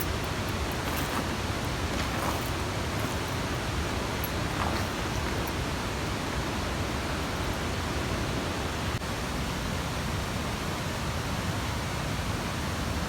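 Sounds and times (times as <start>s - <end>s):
mountain stream running water: 0.0s - 9.0s.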